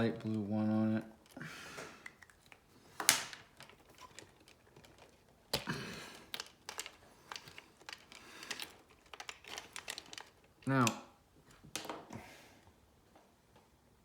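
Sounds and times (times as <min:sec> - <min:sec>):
hands handling wiring: 0:00.0 - 0:12.1.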